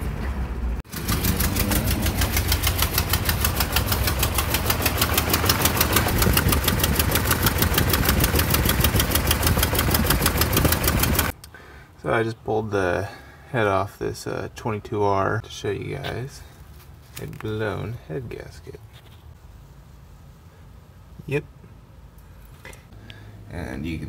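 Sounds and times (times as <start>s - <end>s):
fast even engine ticking: 0.9s - 11.3s
car engine idling: 0.9s - 11.4s.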